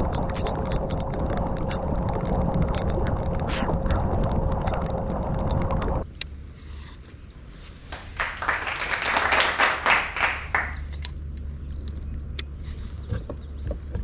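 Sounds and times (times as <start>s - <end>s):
people clapping: 7.9s - 10.9s.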